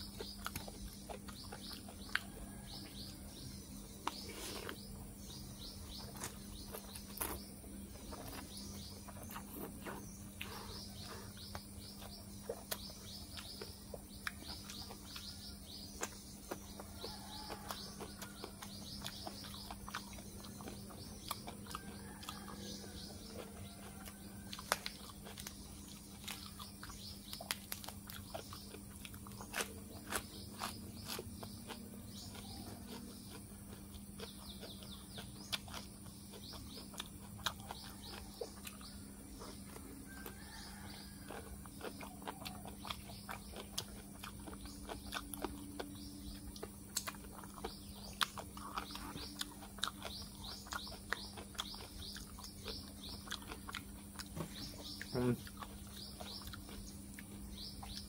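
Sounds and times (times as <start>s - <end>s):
birds chirping: 0.0s - 58.0s
chewing with mouth clicks: 0.0s - 58.0s
steady low hum: 0.0s - 58.0s.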